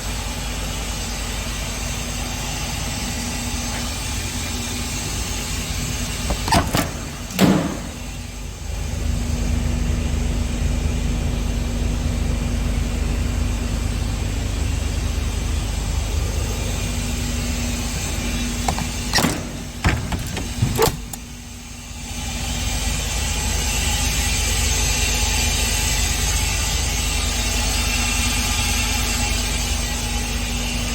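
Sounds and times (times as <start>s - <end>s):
sharp clicks and knocks: 6.3s - 8.0s, 18.6s - 21.3s.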